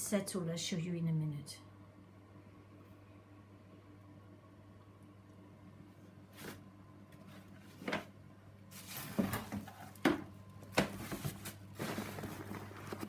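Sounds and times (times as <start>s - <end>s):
steady low hum: 0.0s - 13.0s
rustling: 10.9s - 13.0s.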